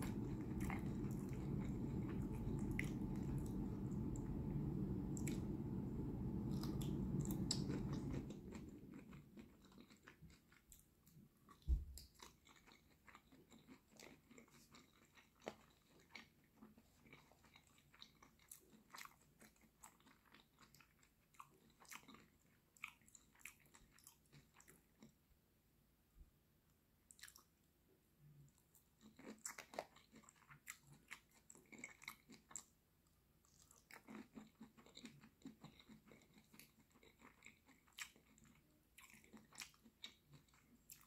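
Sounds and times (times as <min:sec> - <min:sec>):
low steady rumble: 0:00.0 - 0:09.8
chewing with wet clicks and smacks: 0:00.0 - 0:25.2, 0:27.1 - 0:41.0.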